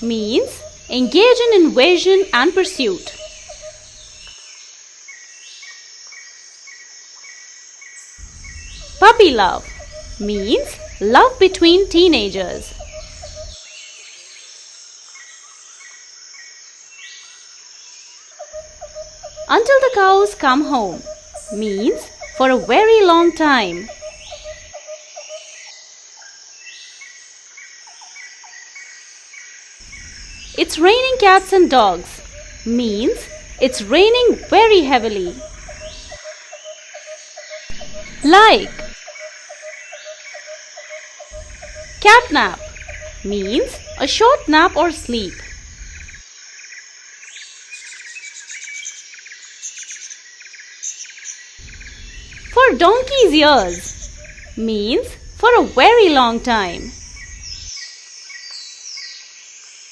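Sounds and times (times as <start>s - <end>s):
high cricket trill: 0.0s - 4.3s, 7.9s - 13.9s, 18.4s - 25.8s, 29.8s - 46.8s, 51.6s - 58.3s
small birds chirping: 0.0s - 16.1s, 16.9s - 25.8s, 26.6s - 46.2s, 47.2s - 59.9s
insect hiss: 0.0s - 59.9s.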